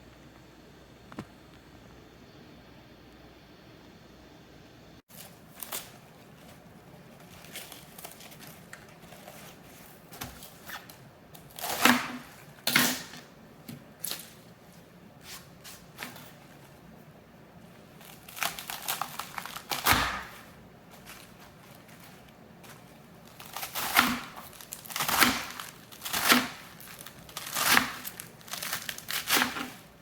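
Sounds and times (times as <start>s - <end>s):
scraping and rustling: 5.1s - 11.0s, 18.0s - 30.0s.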